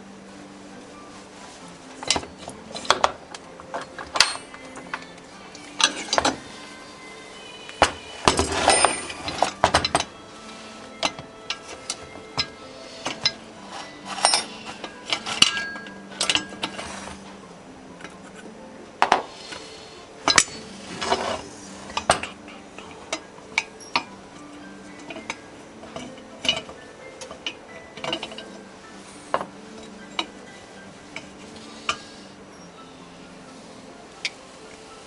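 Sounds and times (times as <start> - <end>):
metal tools clinking: 1.6 - 17.4, 20.2 - 32.8.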